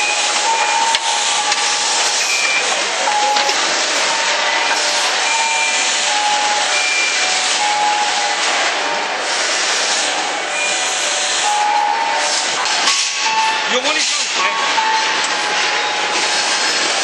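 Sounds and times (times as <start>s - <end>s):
short electronic beeps: 0.0s - 4.5s, 5.2s - 8.4s
machinery and air rush: 0.0s - 17.0s.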